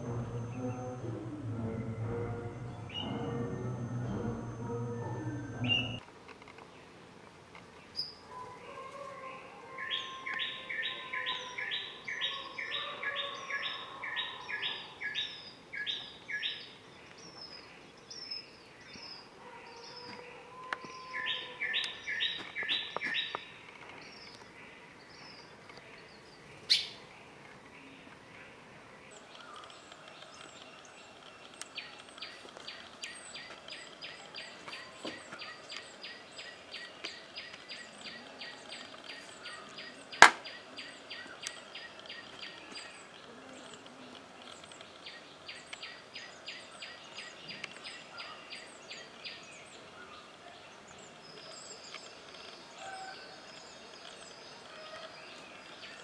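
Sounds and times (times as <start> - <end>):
small bird chirping: 29.1 - 56.0
sharp click: 40.2 - 40.5.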